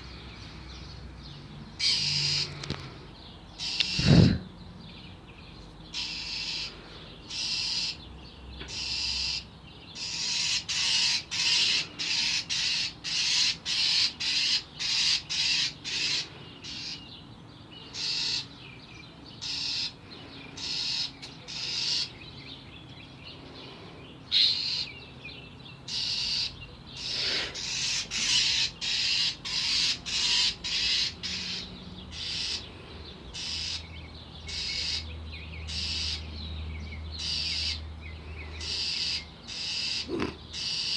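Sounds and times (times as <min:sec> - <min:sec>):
bird alarm calls: 0:03.6 - 0:04.4, 0:05.9 - 0:08.0, 0:08.6 - 0:17.2, 0:17.8 - 0:18.6, 0:19.3 - 0:22.4, 0:24.3 - 0:25.0, 0:25.9 - 0:36.3, 0:37.2 - 0:37.8, 0:38.4 - 0:40.9.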